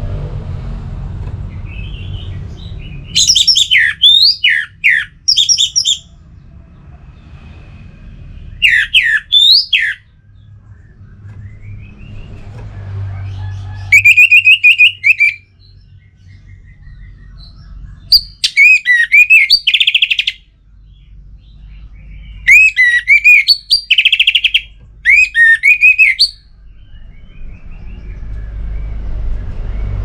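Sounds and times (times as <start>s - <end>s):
low rumble: 0.0s - 3.9s, 5.1s - 9.0s, 10.0s - 13.9s, 26.4s - 30.0s
thrush singing: 3.1s - 6.1s, 8.6s - 10.0s, 13.9s - 15.4s, 18.1s - 20.4s, 22.5s - 26.4s.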